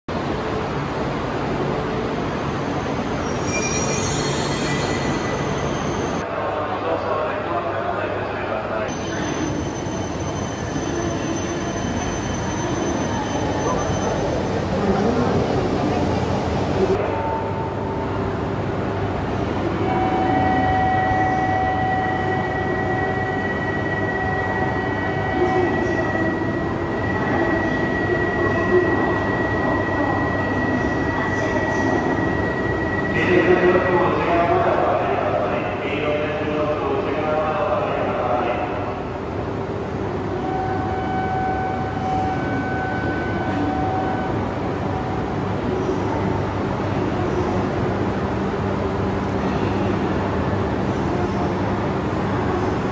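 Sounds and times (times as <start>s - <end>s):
train rumble: 0.1s - 52.9s
high-pitched steady tones: 19.7s - 35.0s.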